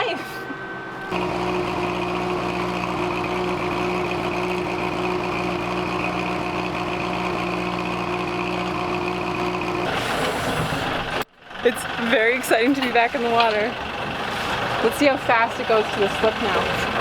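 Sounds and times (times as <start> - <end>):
constant high whine: 0.0 - 7.5
engine running steadily: 0.0 - 17.0.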